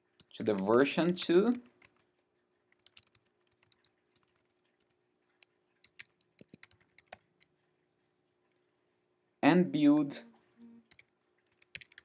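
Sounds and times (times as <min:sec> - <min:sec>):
computer keyboard typing: 0:00.0 - 0:02.1, 0:02.7 - 0:07.5, 0:10.8 - 0:12.0.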